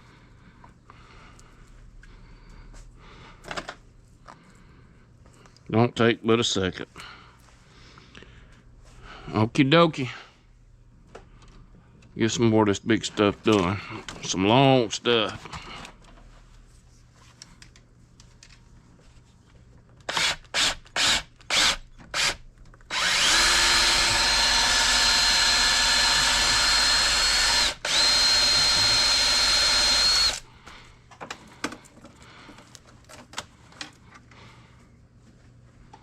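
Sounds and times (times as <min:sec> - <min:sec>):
wire stripper motor whining: 0:20.1 - 0:30.4.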